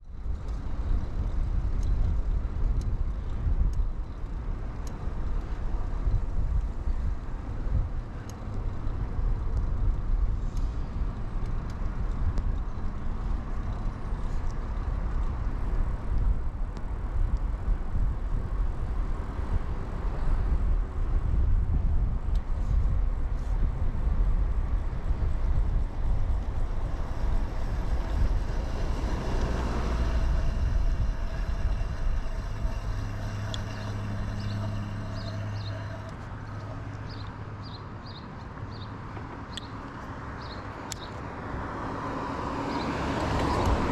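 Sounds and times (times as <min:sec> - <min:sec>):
bicycle tyre rumble: 0:00.0 - 0:37.8
wind buffeting: 0:00.0 - 0:37.8
steady low hum: 0:23.7 - 0:37.7.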